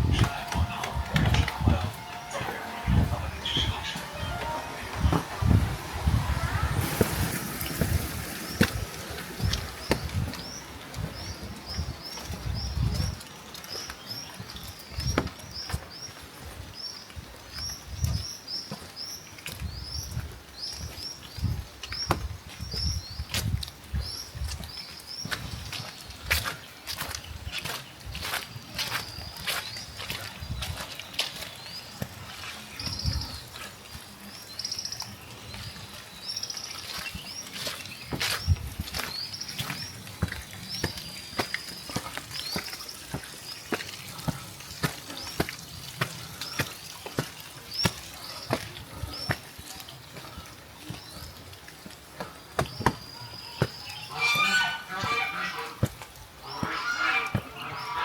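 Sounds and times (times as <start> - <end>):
rain hiss: 0.3 - 12.6, 31.5 - 53.2.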